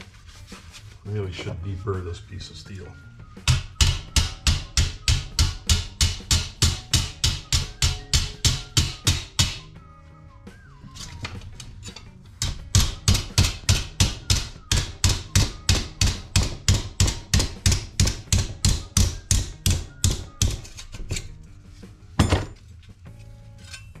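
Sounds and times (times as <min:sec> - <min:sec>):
hammer striking sheet steel: 0:03.4 - 0:09.7, 0:12.4 - 0:21.0.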